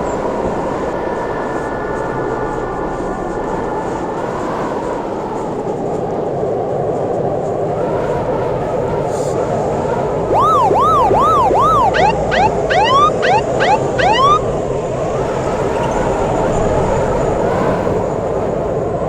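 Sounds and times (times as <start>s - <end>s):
emergency vehicle siren: 10.3s - 14.5s
street noise: 10.3s - 14.5s.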